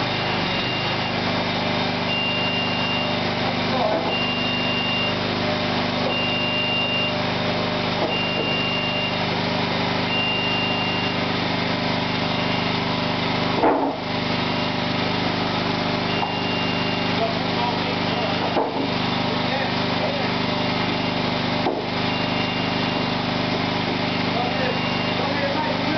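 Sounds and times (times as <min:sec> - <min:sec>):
electronic reversing beeper: 0:00.0 - 0:05.3, 0:06.0 - 0:07.3, 0:08.0 - 0:09.4, 0:10.0 - 0:11.3, 0:14.5 - 0:18.4, 0:22.0 - 0:23.5, 0:24.1 - 0:25.9
machine engine running: 0:00.0 - 0:25.9.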